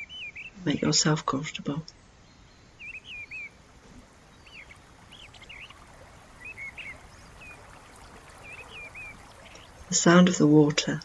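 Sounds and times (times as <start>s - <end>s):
songbirds chirping: 0.0s - 11.0s
running water: 2.4s - 11.0s.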